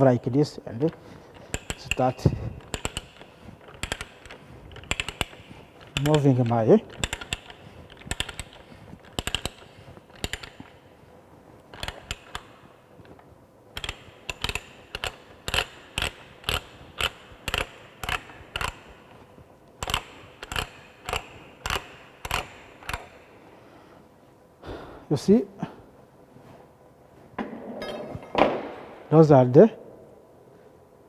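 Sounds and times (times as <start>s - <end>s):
ratchet clicking: 1.4s - 10.8s, 11.7s - 12.6s, 13.8s - 19.2s, 19.8s - 23.2s.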